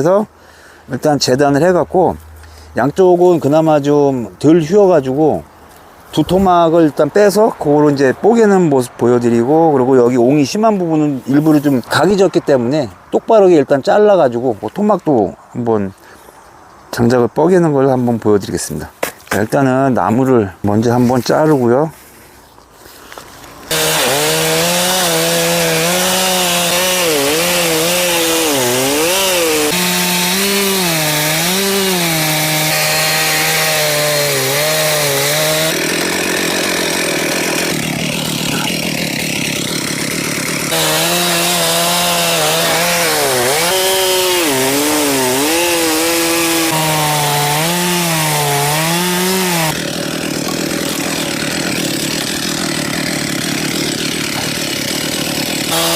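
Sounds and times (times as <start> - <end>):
chainsaw cutting log: 23.6 - 55.9.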